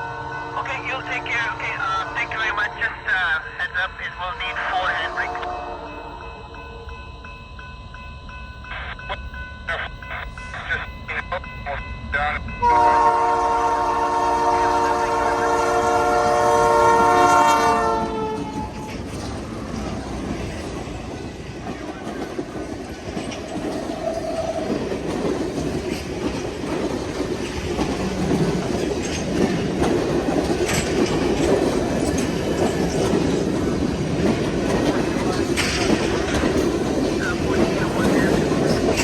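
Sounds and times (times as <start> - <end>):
locomotive air horn: 0.0 - 2.6, 5.0 - 6.2, 12.6 - 18.8
train rumbling by: 0.0 - 39.0
wheels clicking over rail joints: 18.0 - 39.0.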